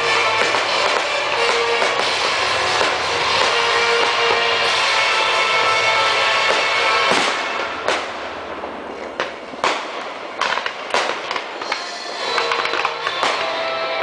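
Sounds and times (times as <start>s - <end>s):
music playing: 0.0s - 8.5s, 11.5s - 14.0s
fireworks banging and crackling: 0.0s - 14.0s.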